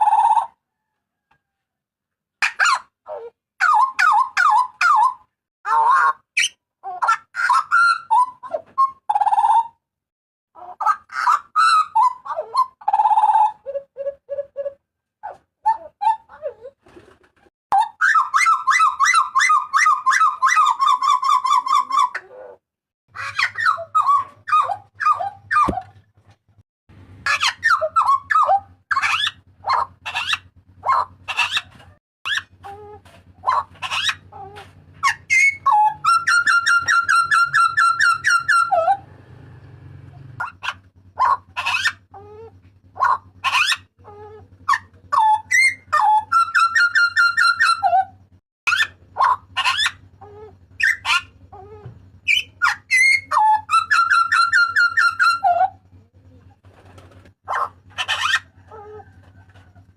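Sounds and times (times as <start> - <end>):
bird whistling calls: 35.0 - 39.0, 50.8 - 55.7
harsh buzzy bird rattle: 56.4 - 59.8.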